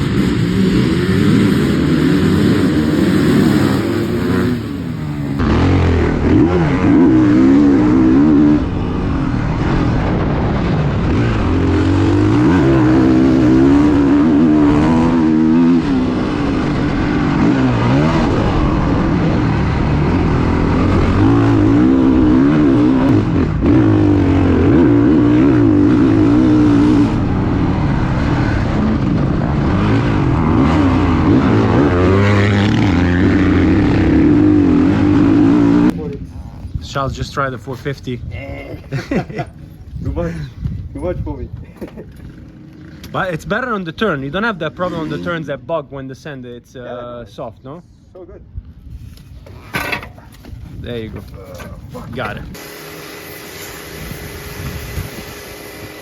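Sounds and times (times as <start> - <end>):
dirt bike engine revving: 0.0 - 36.4, 50.8 - 56.0.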